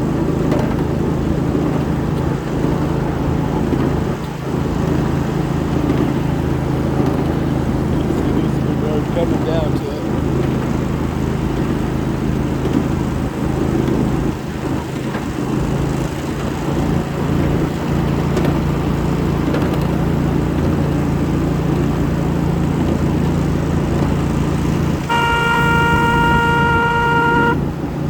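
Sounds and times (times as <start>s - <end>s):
train horn: 25.0s - 27.7s.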